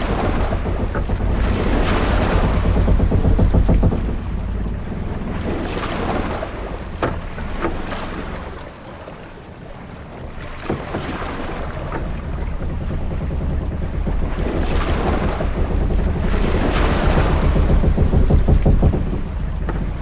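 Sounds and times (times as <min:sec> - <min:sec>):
ship creaking: 0:00.0 - 0:20.0
waves washing against hull: 0:00.0 - 0:20.0
wind: 0:00.0 - 0:20.0.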